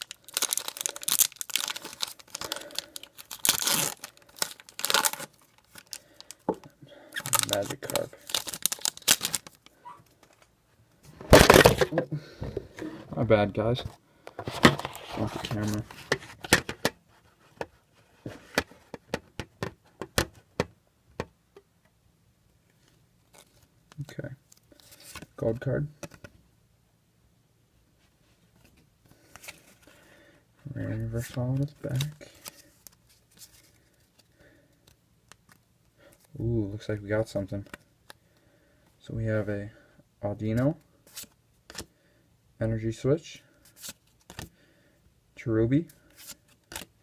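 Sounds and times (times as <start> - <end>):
foil wrapper crinkling and tearing: 0.0 - 6.4, 7.2 - 9.6.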